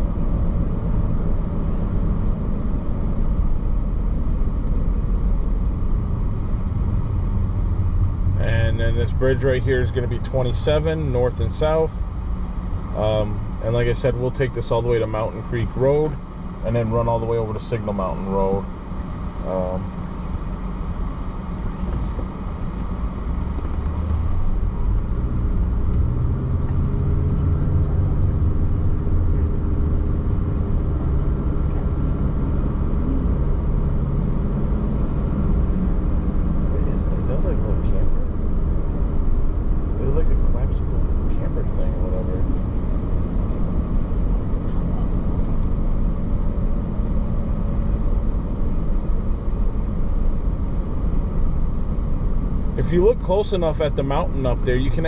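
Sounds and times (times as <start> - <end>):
car road noise rumble: 0.0 - 55.0.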